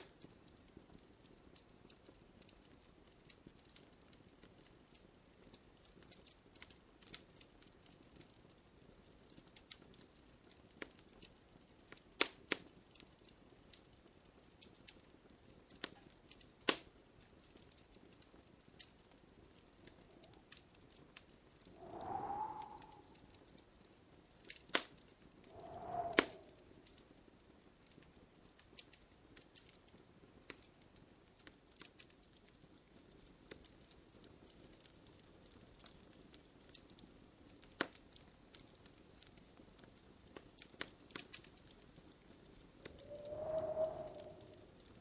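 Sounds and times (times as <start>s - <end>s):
wood fire crackling: 0.0s - 45.0s
soft hooting tone: 21.8s - 23.2s, 42.9s - 44.7s.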